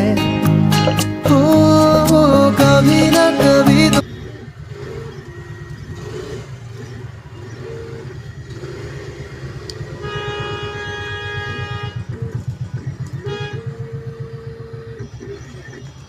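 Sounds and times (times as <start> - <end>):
vehicle engine running: 0.1 - 16.0
vehicle horn blast: 9.8 - 14.9.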